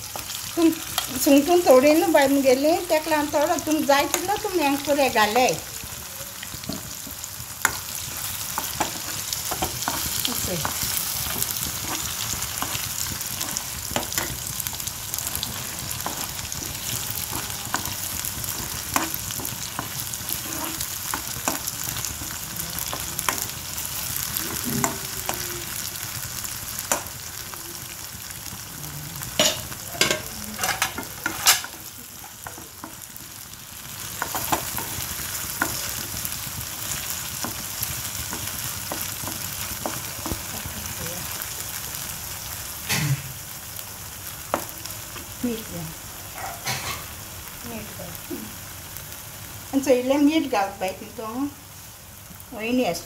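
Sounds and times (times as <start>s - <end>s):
paste sizzling in hot oil: 0.0s - 53.0s
spoon scraping a pan: 6.6s - 26.0s, 29.3s - 40.7s.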